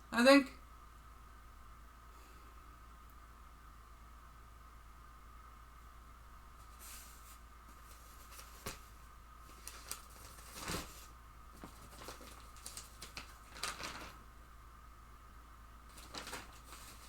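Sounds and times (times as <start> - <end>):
faint steady hum: 0.0 - 17.0
rustling and handling noises: 6.5 - 14.3, 15.8 - 17.0.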